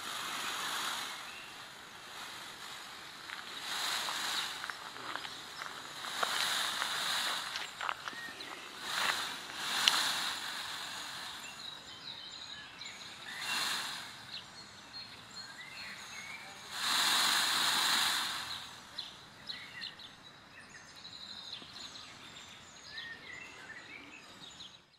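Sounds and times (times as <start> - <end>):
rustling hissing noise: 0.0 - 15.4, 16.0 - 19.6
small birds chirping: 0.0 - 24.9.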